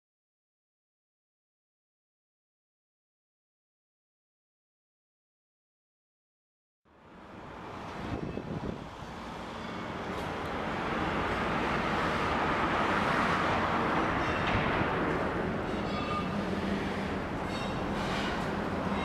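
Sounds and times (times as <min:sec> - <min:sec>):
train rumble and rush: 0:07.0 - 0:19.0.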